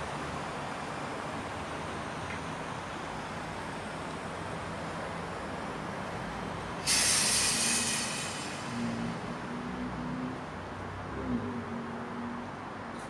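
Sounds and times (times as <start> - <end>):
residential street ambience: 0.0 - 13.0
sudden loud hiss: 6.8 - 9.2.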